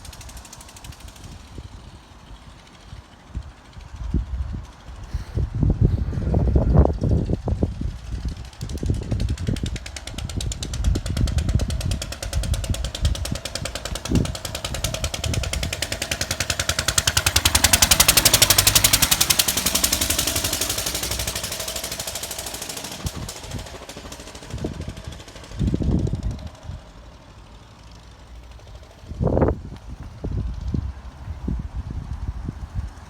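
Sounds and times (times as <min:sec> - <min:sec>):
wind gusts on microphone: 0:00.0 - 0:27.2, 0:28.6 - 0:33.0
stationary engine running: 0:06.7 - 0:29.5.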